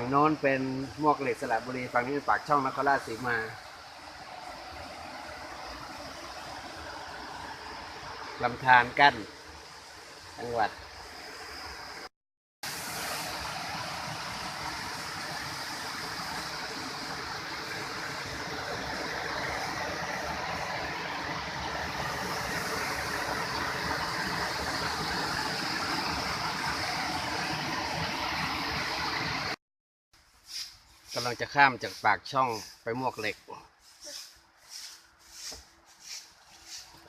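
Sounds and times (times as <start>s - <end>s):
stream water rushing: 0.0s - 29.6s.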